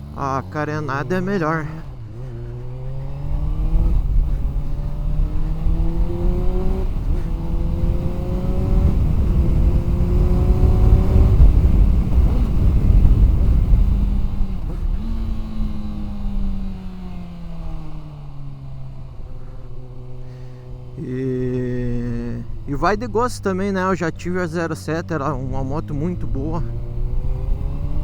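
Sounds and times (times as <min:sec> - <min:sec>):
motorcycle engine accelerating: 0:00.0 - 0:28.0
wind noise on microphone: 0:05.8 - 0:16.1.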